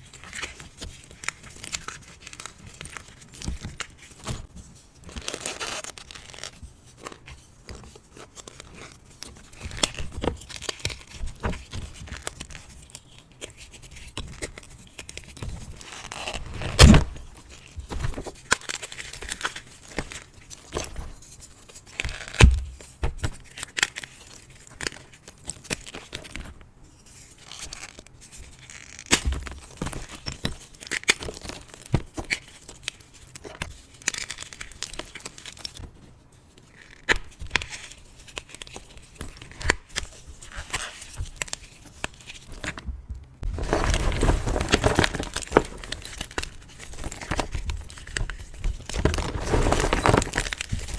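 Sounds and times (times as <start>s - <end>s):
chalk crunching and crackling: 43.4s - 46.5s, 48.9s - 50.9s.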